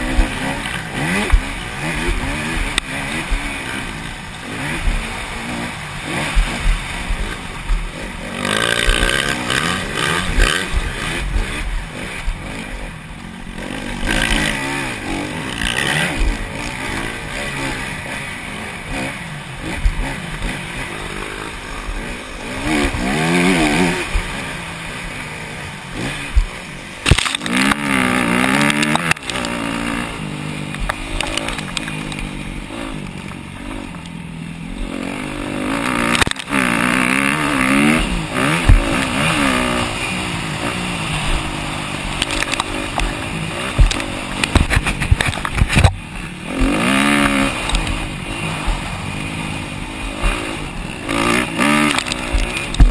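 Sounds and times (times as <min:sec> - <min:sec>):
dirt bike engines revving: 0:00.0 - 0:52.9
bike knocking on bumps: 0:51.6 - 0:52.9.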